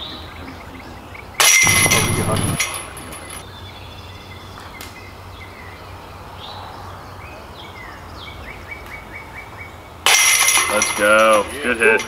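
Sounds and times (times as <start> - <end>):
steady low hum: 1.6 - 2.8.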